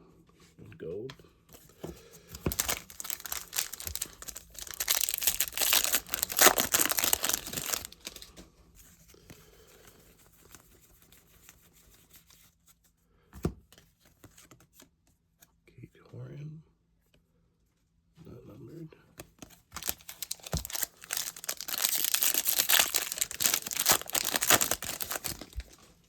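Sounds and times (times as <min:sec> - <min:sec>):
foil wrapper tearing and crinkling: 0:02.4 - 0:08.3, 0:19.7 - 0:25.9.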